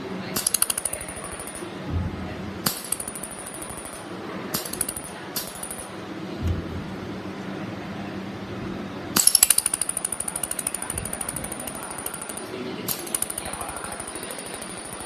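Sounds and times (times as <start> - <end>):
low machine hum: 0.0 - 15.0
steady high whine: 9.2 - 15.0.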